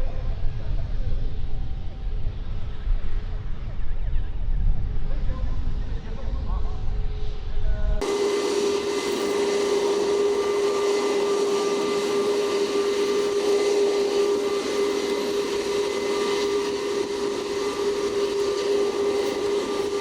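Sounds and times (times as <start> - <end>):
jet engines whining: 4.8 - 20.0.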